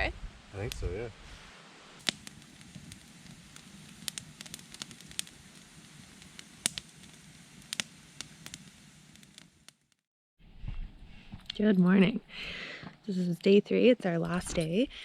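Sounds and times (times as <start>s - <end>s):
low steady hiss: 0.0s - 9.8s
campfire crackling and popping: 0.0s - 10.1s, 10.7s - 14.8s.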